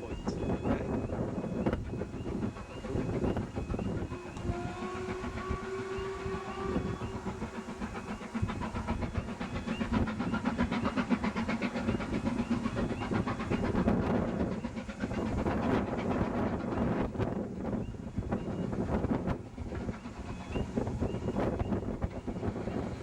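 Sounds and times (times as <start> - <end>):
steam locomotive whistle: 0.0 - 10.0
train running past: 0.0 - 23.0.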